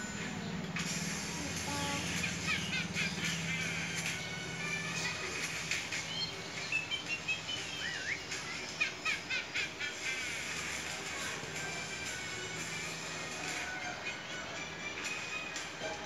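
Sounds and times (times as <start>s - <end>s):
small birds chirping: 0.0s - 12.3s
faint background music: 0.0s - 16.0s.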